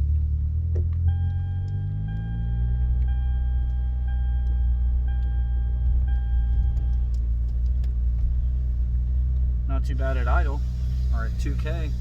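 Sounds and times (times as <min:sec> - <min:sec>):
car engine idling with knock: 0:00.0 - 0:12.0
warning chime: 0:01.1 - 0:07.0.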